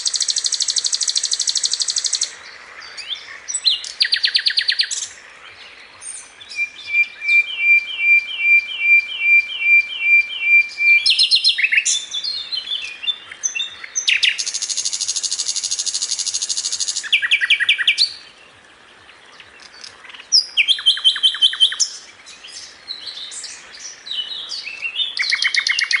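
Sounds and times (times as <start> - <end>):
sharp repeated bird notes: 0.0 - 2.4, 6.6 - 12.1
songbird chirps and trills: 0.0 - 26.0.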